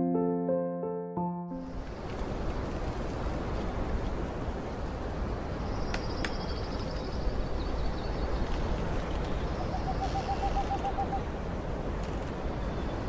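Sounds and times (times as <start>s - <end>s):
birds calling: 5.6s - 11.3s.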